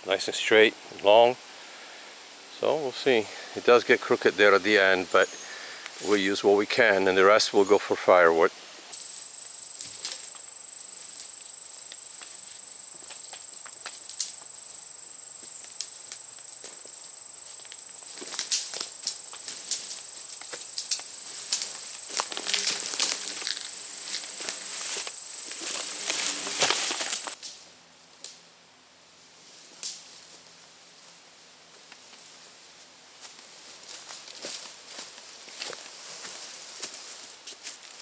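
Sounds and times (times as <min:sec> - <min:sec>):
outdoor background: 0:00.0 - 0:38.0
footsteps in the woods: 0:03.0 - 0:28.2, 0:29.3 - 0:38.0
high-pitched insect drone: 0:08.9 - 0:27.4.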